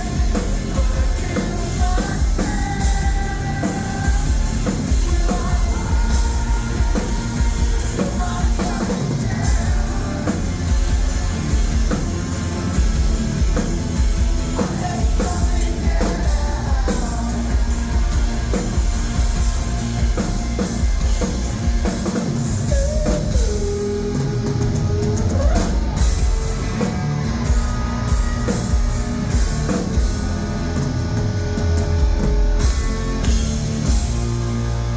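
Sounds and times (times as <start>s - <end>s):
person singing lead vocal: 0.0s - 11.6s, 14.5s - 18.7s, 22.1s - 28.3s
rock band playing live: 0.0s - 34.9s.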